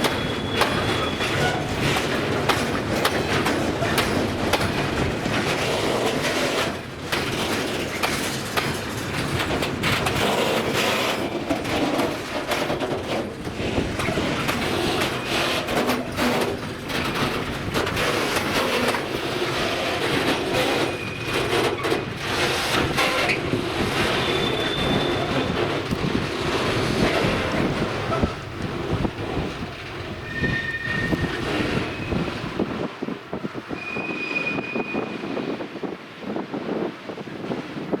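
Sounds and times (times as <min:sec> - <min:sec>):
high wheel squeals: 0:00.0 - 0:02.0, 0:20.6 - 0:22.0, 0:23.0 - 0:25.9, 0:30.2 - 0:32.5, 0:33.6 - 0:35.4
train wheels clattering: 0:00.0 - 0:35.2.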